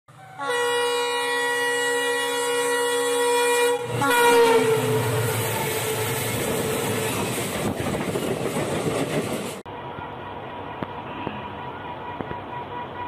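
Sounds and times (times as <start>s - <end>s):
locomotive horn: 0.1s - 6.4s.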